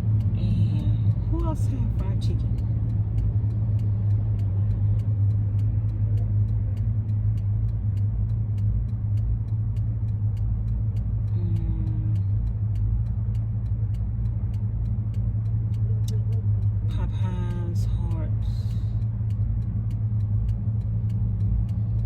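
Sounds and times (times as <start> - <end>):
constant low hum: 0.0 - 22.0
van engine and road rumble: 0.0 - 22.0.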